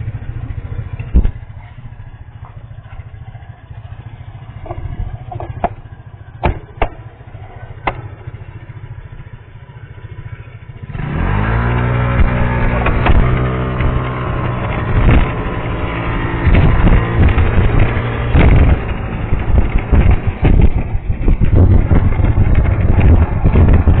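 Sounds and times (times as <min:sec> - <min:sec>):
engine and road hum: 0:00.0 - 0:24.0
punctured tyre knocking: 0:04.5 - 0:07.2, 0:07.8 - 0:08.3.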